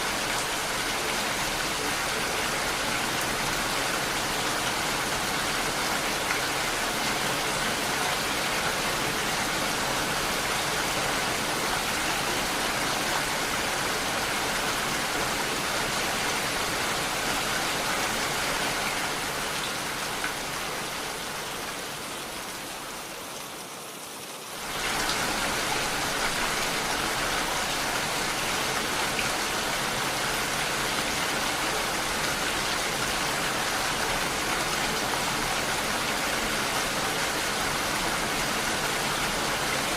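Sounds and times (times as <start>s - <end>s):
heavy rain hissing: 24.5s - 39.9s.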